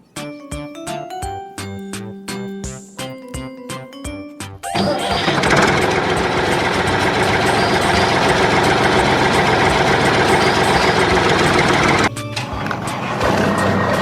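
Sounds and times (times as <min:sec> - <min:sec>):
vehicle engine running: 0:04.8 - 0:12.1.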